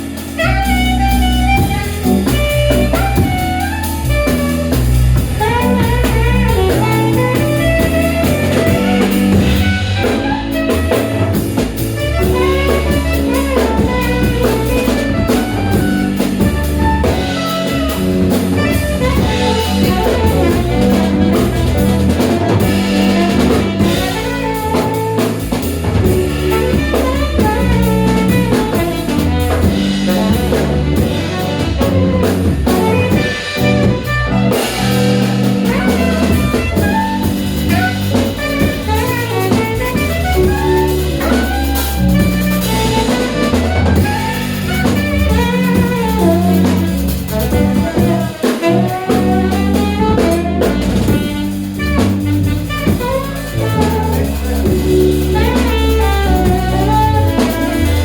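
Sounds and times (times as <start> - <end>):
alto saxophone melody: 0.0 - 58.0
jazz band playing: 0.0 - 58.0.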